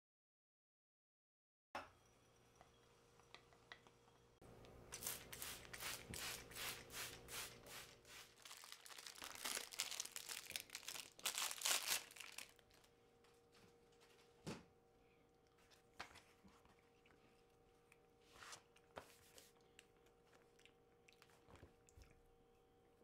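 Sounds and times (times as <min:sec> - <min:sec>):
paper rustling and crinkling: 0:08.4 - 0:13.0.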